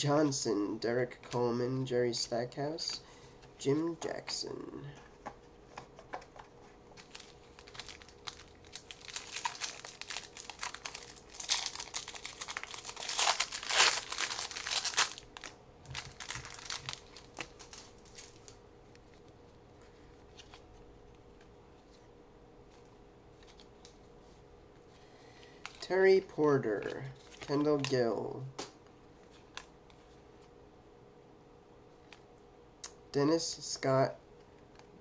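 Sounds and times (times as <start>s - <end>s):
wrapper tearing and crinkling: 7.0s - 18.6s.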